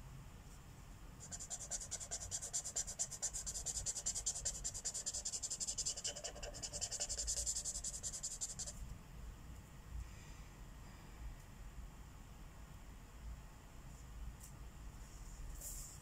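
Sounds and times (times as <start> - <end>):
marker scribbling on paper: 1.2 - 8.8.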